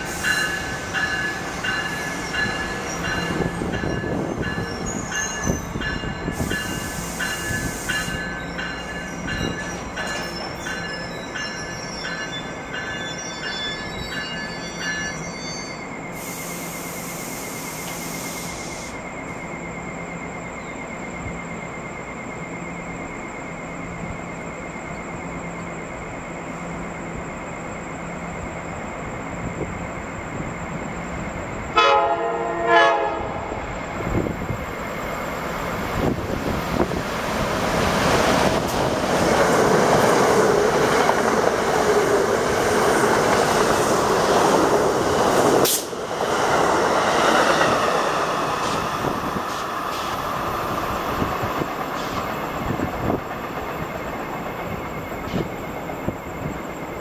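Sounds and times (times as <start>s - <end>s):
train passing at speed: 0.0s - 57.0s
train horn blasts: 31.8s - 33.7s.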